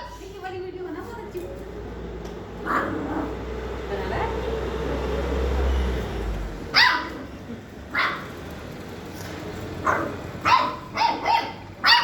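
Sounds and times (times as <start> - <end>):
dog barking: 2.6 - 3.4, 6.7 - 7.3, 7.9 - 8.3, 9.8 - 12.0.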